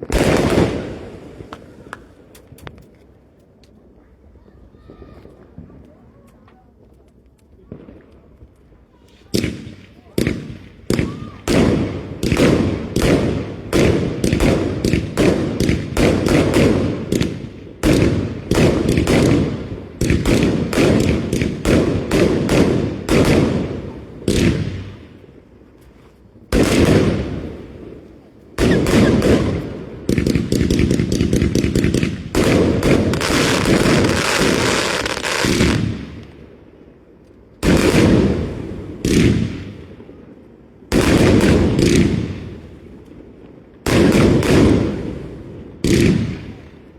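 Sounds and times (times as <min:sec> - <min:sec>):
fireworks bangs: 0:00.0 - 0:03.1, 0:04.6 - 0:36.6, 0:37.6 - 0:43.2, 0:43.8 - 0:46.9
fireworks crackling: 0:00.0 - 0:46.9.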